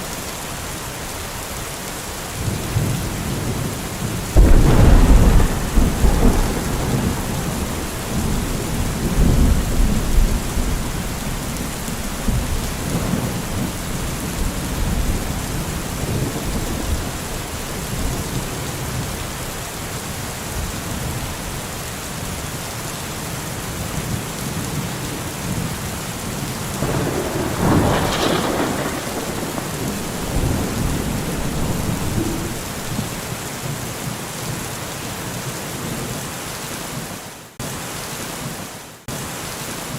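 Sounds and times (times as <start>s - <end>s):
heavy rain: 0.0s - 39.9s
rolling thunder: 2.4s - 19.4s, 25.4s - 33.5s.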